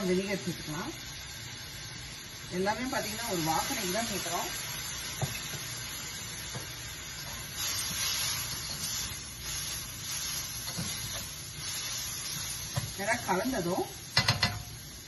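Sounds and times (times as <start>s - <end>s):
vegetables sizzling in a wok: 0.0s - 15.0s
spatula stirring in a wok: 2.9s - 14.8s.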